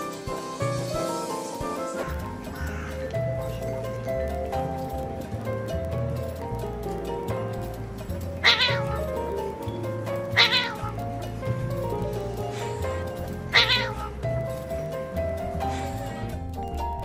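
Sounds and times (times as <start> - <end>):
background music: 0.0 - 17.0
cat yowling: 8.4 - 9.2, 10.2 - 11.0, 12.9 - 14.2.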